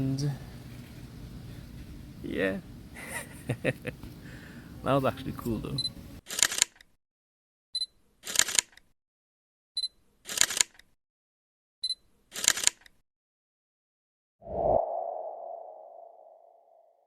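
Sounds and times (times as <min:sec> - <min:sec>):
camera shutter: 0:06.2 - 0:06.9, 0:08.2 - 0:08.8, 0:10.3 - 0:10.9, 0:12.3 - 0:13.0.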